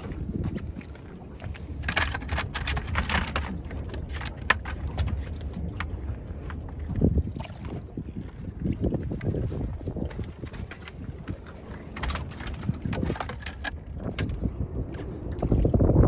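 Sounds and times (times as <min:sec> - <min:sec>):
wind buffeting microphone: 0:00.0 - 0:16.0
sharp clicks and crackles: 0:01.8 - 0:05.9, 0:11.9 - 0:15.0.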